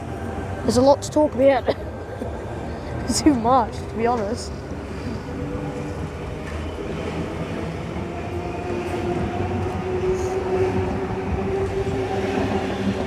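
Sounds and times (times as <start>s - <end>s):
train cars rumbling: 0.0s - 13.0s.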